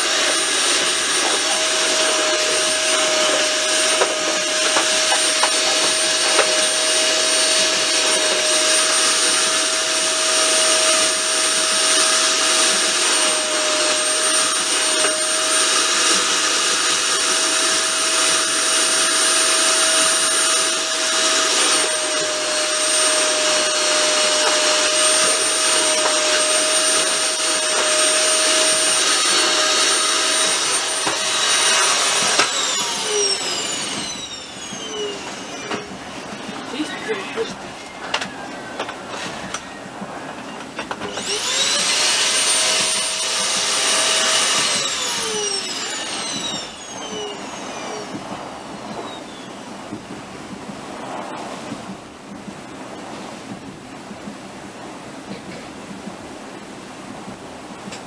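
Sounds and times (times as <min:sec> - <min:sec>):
mid-pitched whine: 0:00.0 - 0:58.0
faint high whine: 0:44.6 - 0:53.6.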